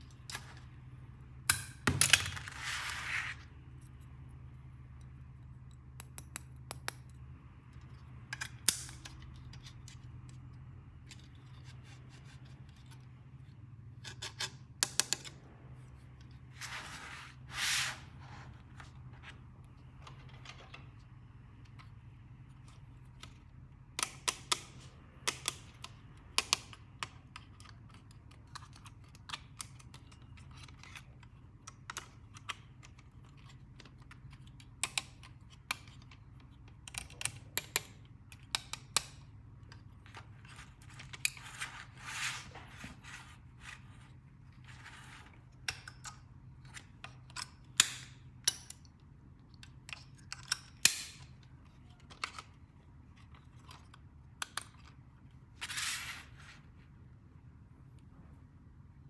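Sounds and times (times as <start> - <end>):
scraping or rustling: 2.4 - 3.5, 16.5 - 19.3, 40.4 - 45.4, 55.6 - 56.8.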